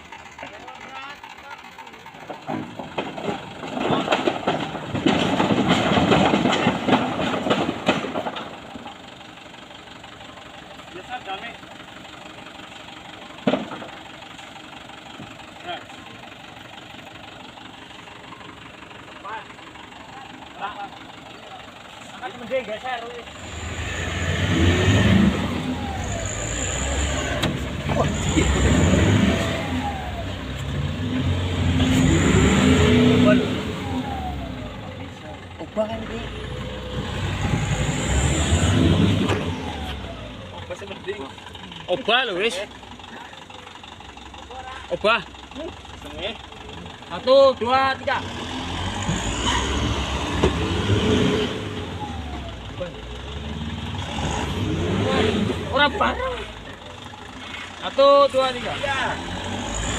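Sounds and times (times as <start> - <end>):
engine straining under load: 0.0 - 59.9
clattering and knocks: 0.2 - 8.9, 13.4 - 14.2.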